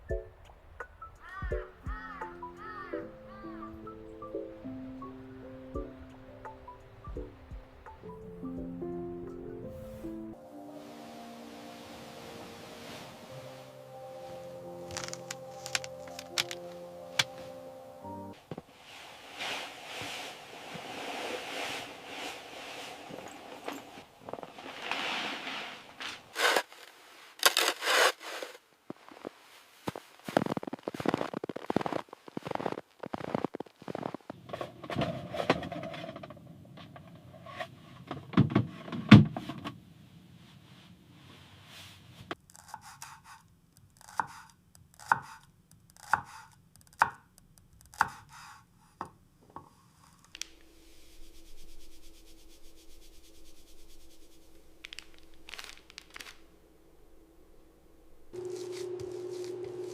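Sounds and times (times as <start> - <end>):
low hum with faint hiss: 48.7 - 59.9.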